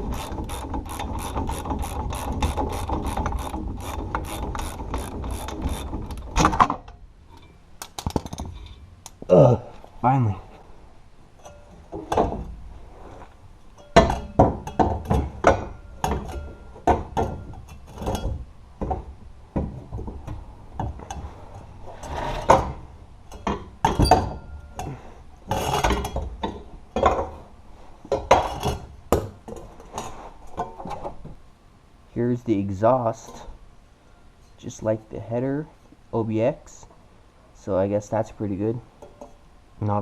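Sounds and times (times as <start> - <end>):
metal knocks and clanks: 0.0 - 8.8, 11.4 - 12.6, 13.7 - 21.4.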